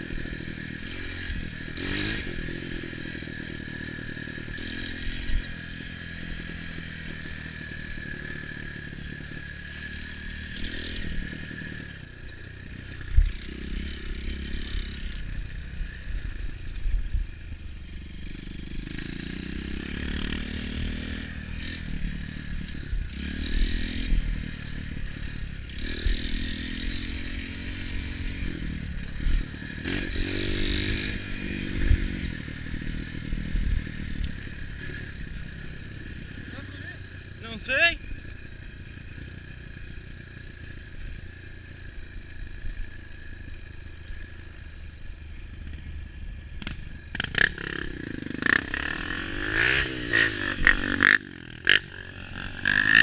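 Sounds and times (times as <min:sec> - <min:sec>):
motorcycle engines revving: 0:00.0 - 0:53.0.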